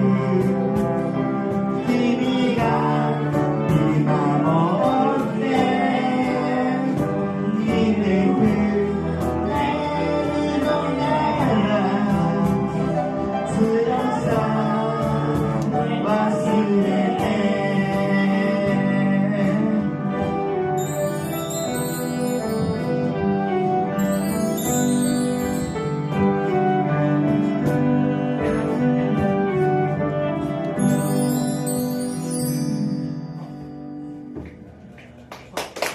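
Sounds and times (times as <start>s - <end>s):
instrumental accompaniment: 0.0s - 34.9s
voices singing: 1.8s - 19.8s.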